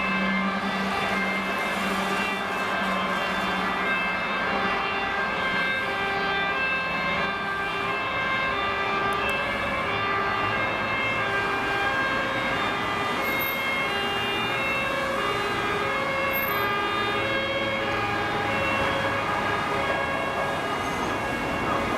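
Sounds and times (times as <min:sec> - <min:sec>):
fire engine two-tone siren: 0:00.0 - 0:21.9
vehicles driving: 0:06.6 - 0:21.9.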